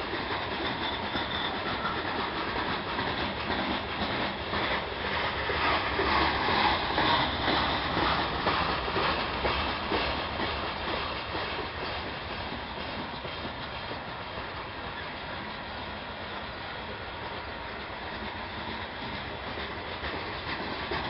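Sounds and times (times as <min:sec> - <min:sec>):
freight train rumble: 0:00.0 - 0:21.0
train wheels clacking over rail joints: 0:00.0 - 0:21.0.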